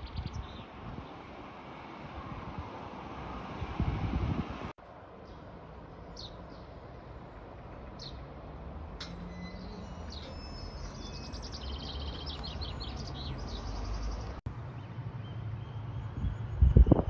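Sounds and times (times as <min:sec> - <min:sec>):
small songbird singing: 0:00.0 - 0:01.2, 0:09.3 - 0:17.0
wind rumble on microphone: 0:00.0 - 0:01.2, 0:02.1 - 0:04.7, 0:15.9 - 0:17.0.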